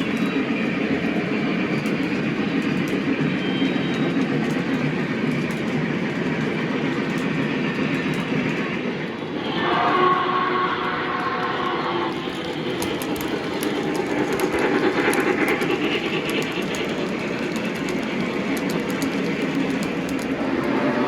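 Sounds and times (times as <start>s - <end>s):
model train rumbling: 0.0s - 21.0s
wheels clicking over rail joints: 12.1s - 21.0s.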